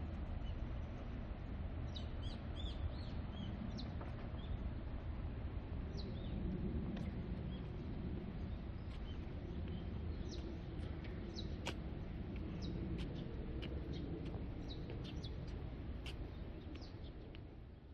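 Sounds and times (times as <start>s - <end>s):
small birds chirping: 5.8s - 17.9s.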